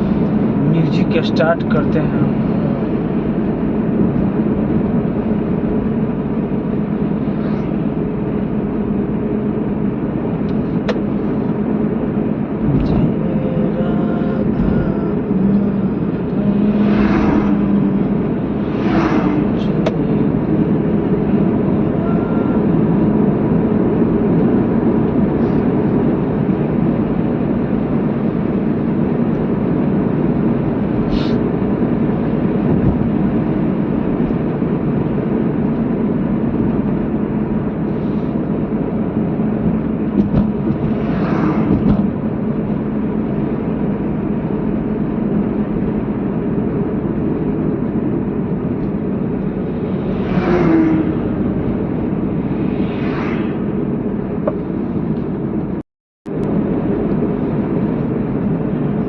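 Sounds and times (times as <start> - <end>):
car road and engine noise: 0.0 - 59.0
brief whoosh: 16.5 - 20.0, 49.9 - 54.9.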